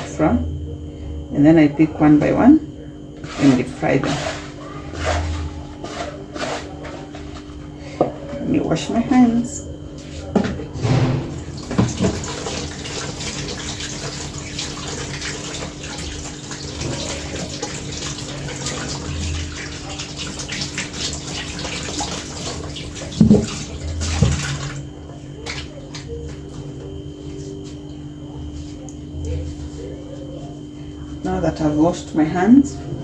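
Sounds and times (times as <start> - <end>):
tap water running: 10.3 - 26.9
hands washing under water: 10.9 - 26.6.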